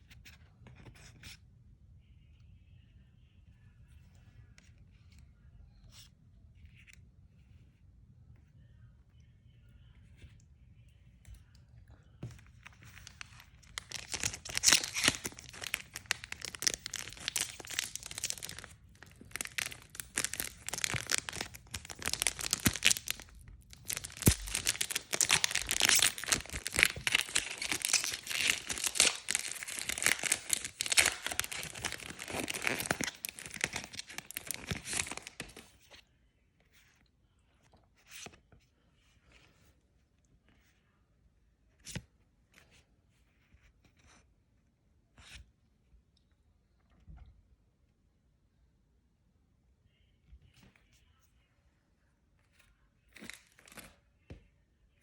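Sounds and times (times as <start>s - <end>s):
packaging tearing and crinkling: 13.0s - 35.6s.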